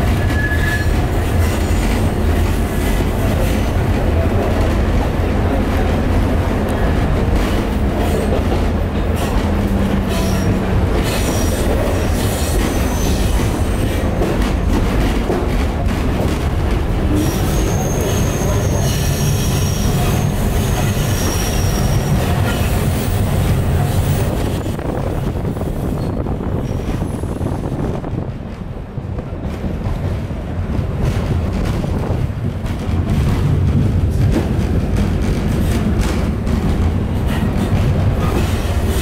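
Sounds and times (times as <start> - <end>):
train wheels rumbling on rail: 0.0 - 39.0
high-pitched wheel squeal: 0.2 - 0.9, 17.2 - 22.3.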